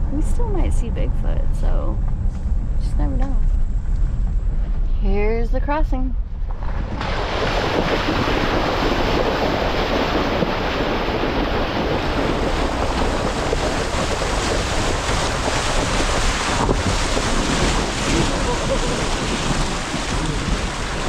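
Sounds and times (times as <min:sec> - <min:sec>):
vehicle engine rumble: 0:00.0 - 0:21.0
water splashing around vehicle: 0:06.5 - 0:21.0.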